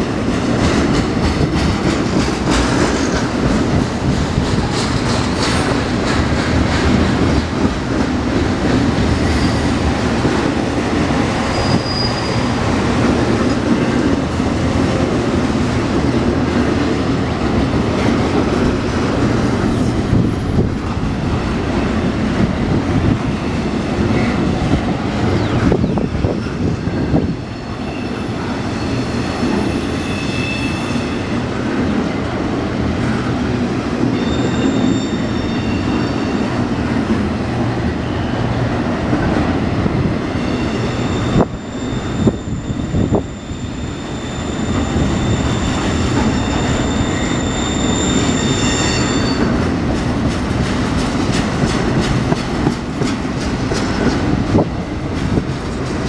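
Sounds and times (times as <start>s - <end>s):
train wheels rumbling on rail: 0.0s - 56.0s
high-pitched wheel squeal: 11.4s - 12.6s, 25.2s - 31.3s, 34.2s - 36.5s, 40.4s - 49.6s.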